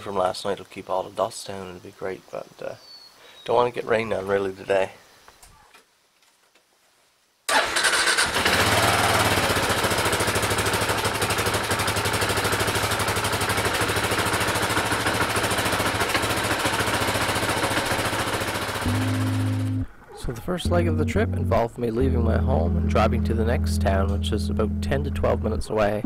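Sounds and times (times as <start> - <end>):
motorcycle engine running: 8.2 - 19.9.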